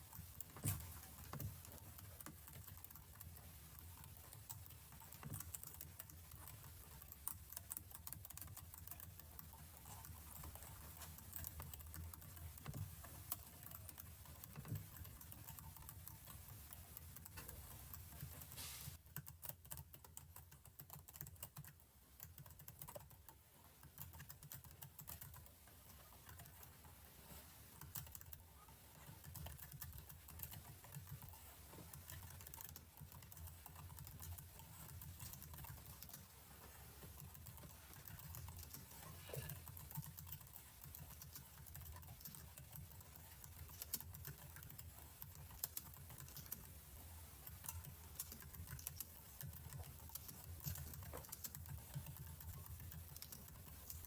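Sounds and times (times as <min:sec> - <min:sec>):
computer keyboard typing: 0:19.1 - 0:26.7, 0:27.8 - 0:36.4, 0:37.0 - 0:46.8, 0:47.4 - 0:54.0.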